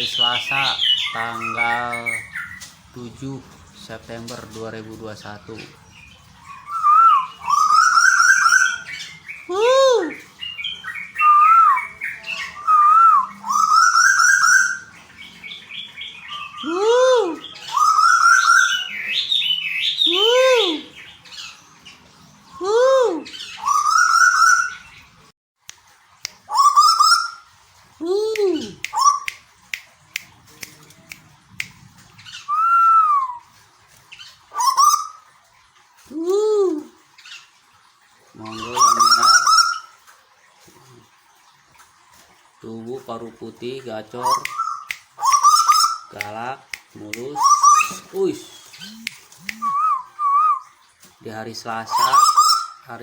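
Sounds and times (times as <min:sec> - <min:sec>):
koel whistled calls: 0:06.4 - 0:09.4, 0:10.2 - 0:14.9, 0:15.7 - 0:20.8, 0:23.3 - 0:25.0, 0:26.5 - 0:27.5, 0:28.6 - 0:29.4, 0:32.3 - 0:33.5, 0:38.6 - 0:40.0, 0:44.2 - 0:46.4, 0:47.2 - 0:50.8, 0:51.9 - 0:52.8
koel calling: 0:38.4 - 0:40.0, 0:47.1 - 0:50.7.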